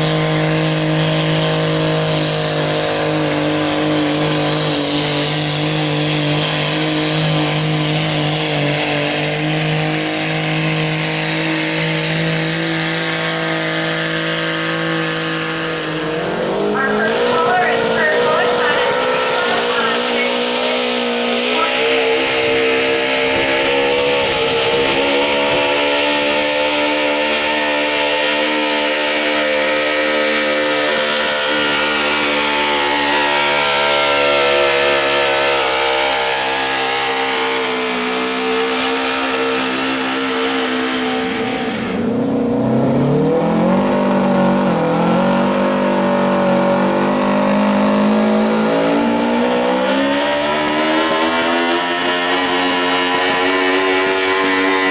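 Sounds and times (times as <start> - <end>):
tractor engine revving hard: 0.0 - 54.9.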